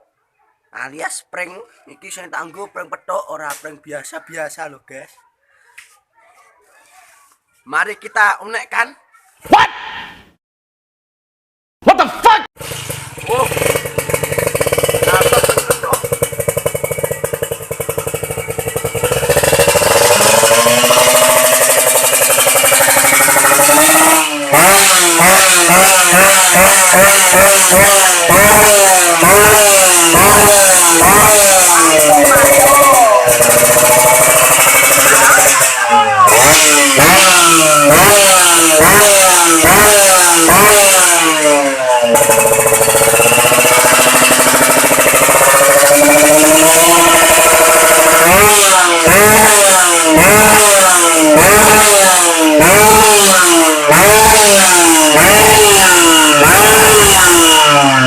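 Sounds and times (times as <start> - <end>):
motorcycle engine revving: 12.6 - 58.0.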